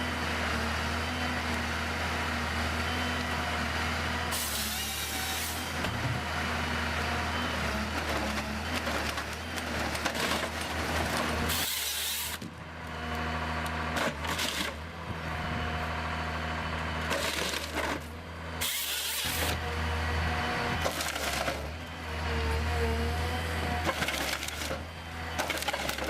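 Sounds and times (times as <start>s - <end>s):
engine hum: 0.0s - 26.0s
wood cracking and splitting: 7.9s - 16.0s, 16.8s - 19.6s, 20.4s - 22.0s, 23.6s - 26.0s.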